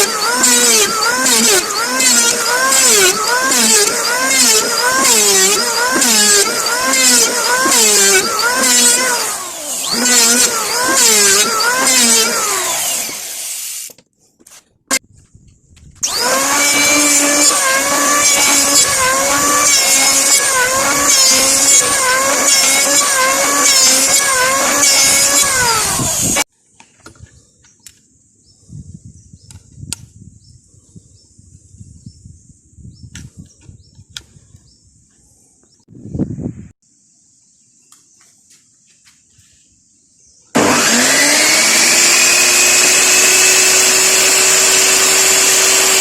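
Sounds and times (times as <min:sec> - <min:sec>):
power tool cutting wood: 0:00.0 - 0:13.9, 0:16.0 - 0:26.5, 0:40.6 - 0:46.0.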